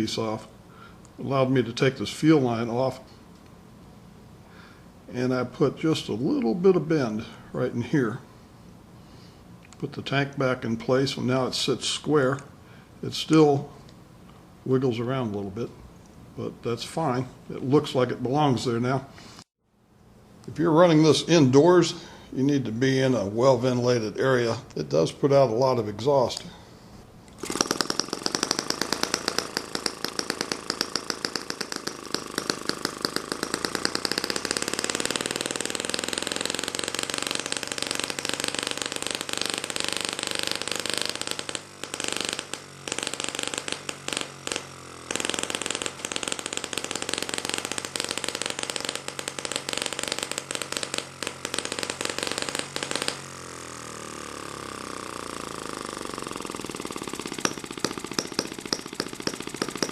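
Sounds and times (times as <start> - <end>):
model engine popping exhaust: 27.3 - 59.9.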